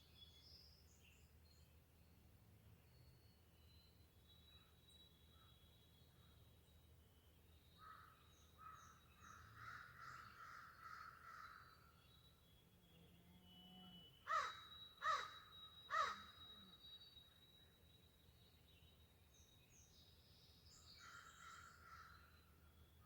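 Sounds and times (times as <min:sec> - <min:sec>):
faint bird calls: 0:13.4 - 0:16.8
crow cawing: 0:14.3 - 0:16.2.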